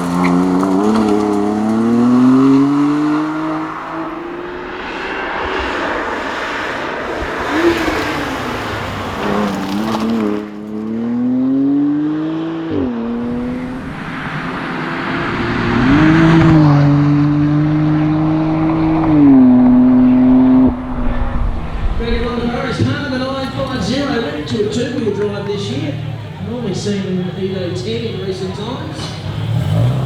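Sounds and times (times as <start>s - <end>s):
wind noise: 0.0s - 10.4s, 13.2s - 23.8s
tyre noise: 0.0s - 11.0s
car engine accelerating: 0.0s - 30.0s.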